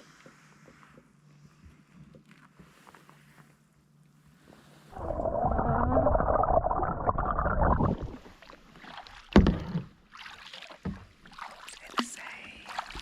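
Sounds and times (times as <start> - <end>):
kayak paddle splashing: 5.0 - 13.0.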